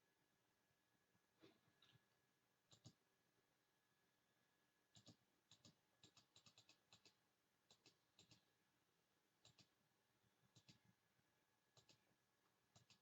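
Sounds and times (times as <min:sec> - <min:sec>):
computer mouse and keyboard clicking: 0:02.7 - 0:03.0, 0:04.9 - 0:08.5, 0:09.4 - 0:09.8, 0:10.5 - 0:10.9, 0:11.7 - 0:12.1, 0:12.7 - 0:13.0.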